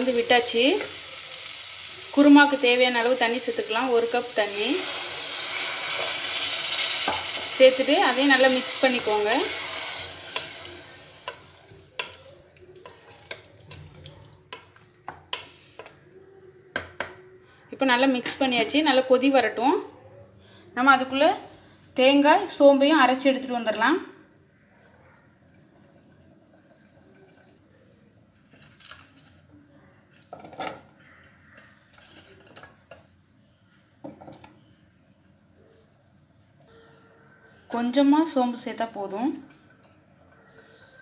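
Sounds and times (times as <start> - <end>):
spoon stirring in a pan: 2.5 - 17.2, 30.1 - 33.2.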